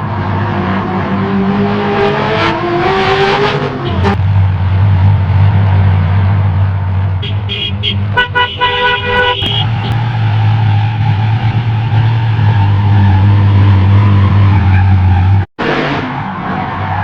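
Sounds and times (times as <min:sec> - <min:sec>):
car engine drone: 0:00.0 - 0:17.0
car horn tooting: 0:03.7 - 0:04.2, 0:07.2 - 0:10.2.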